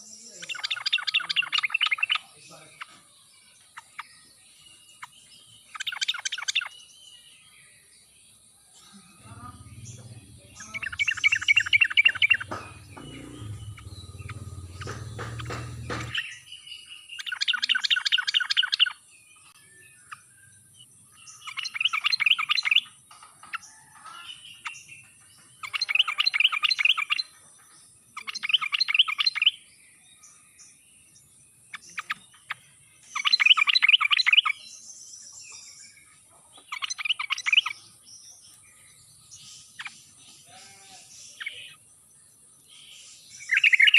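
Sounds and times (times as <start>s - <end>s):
bulbul singing: 0.0s - 43.9s
low rumble: 9.2s - 16.2s.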